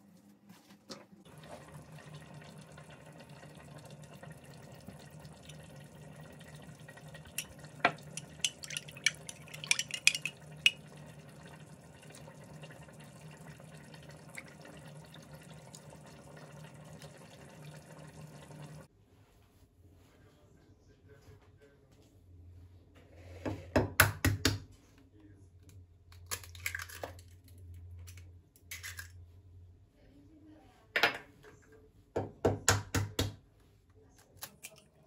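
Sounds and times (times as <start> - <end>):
dishes clinking: 7.3 - 10.9
tap running into sink: 7.3 - 11.0.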